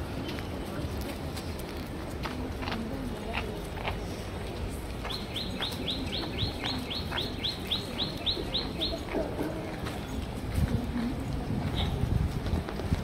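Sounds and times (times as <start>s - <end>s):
bird chirping rapidly: 5.1s - 9.0s.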